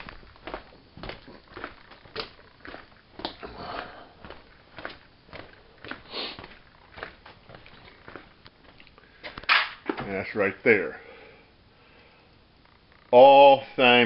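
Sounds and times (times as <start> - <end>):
footsteps walking: 0.0 - 10.2.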